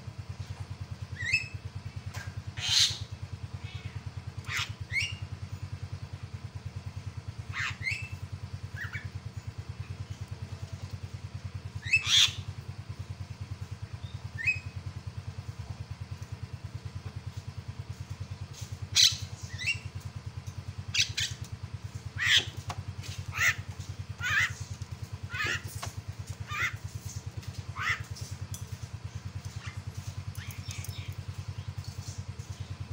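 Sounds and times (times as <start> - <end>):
low throbbing hum: 0.0 - 32.9
bird squawking calls: 2.6 - 5.2, 7.5 - 8.2, 11.8 - 12.5, 18.9 - 19.9, 20.9 - 21.4, 22.1 - 24.6, 25.2 - 25.8, 26.4 - 26.9, 27.7 - 28.2.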